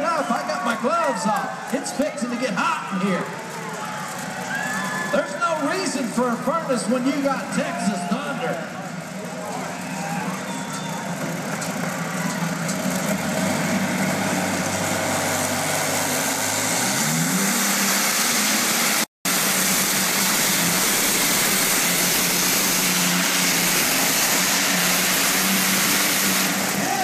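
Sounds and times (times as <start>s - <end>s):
aircraft engine running hard: 12.7s - 27.0s.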